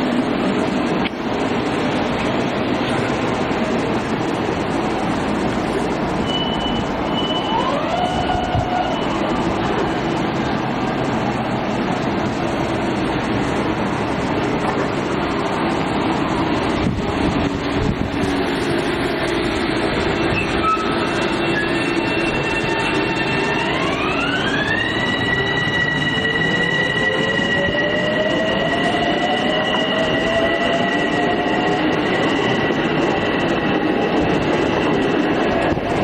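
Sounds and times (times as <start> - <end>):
rail noise: 0.0 - 36.0
electric train motors whining: 0.4 - 36.0.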